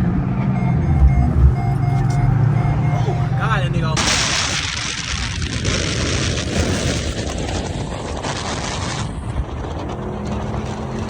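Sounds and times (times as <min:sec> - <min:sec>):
heavy wind noise: 0:00.0 - 0:11.0
loud car engine and exhaust: 0:00.0 - 0:11.0.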